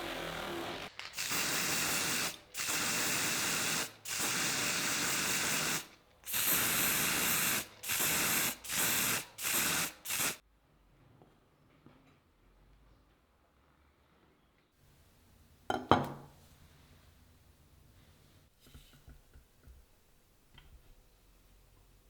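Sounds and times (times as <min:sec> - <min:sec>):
spray hissing in bursts: 0:00.0 - 0:10.4.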